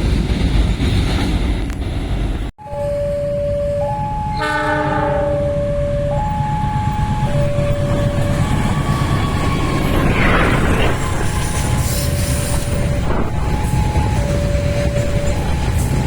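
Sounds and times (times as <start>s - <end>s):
train rumbling: 0.0s - 16.0s
two-pitch train horn: 4.2s - 5.9s.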